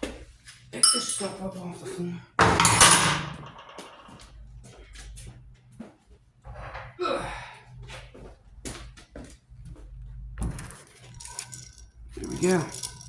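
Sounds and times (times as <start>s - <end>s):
metal tools clunking on workbench: 0.8s - 1.4s, 2.4s - 4.2s, 10.4s - 13.0s.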